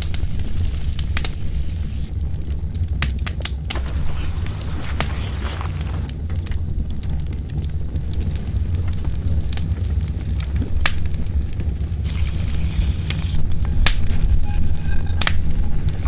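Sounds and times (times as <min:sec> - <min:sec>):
campfire crackling and popping: 0:03.4 - 0:06.2.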